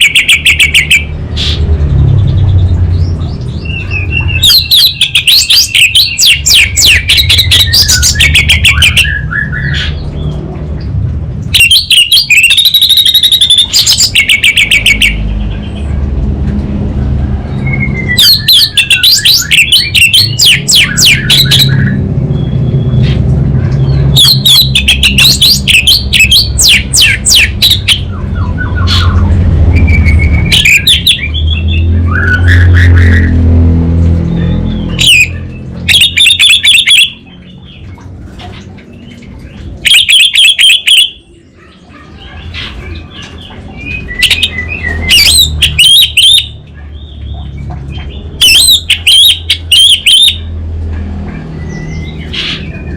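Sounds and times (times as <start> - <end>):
thrush singing rapid crackling trills: 0.0 - 52.9.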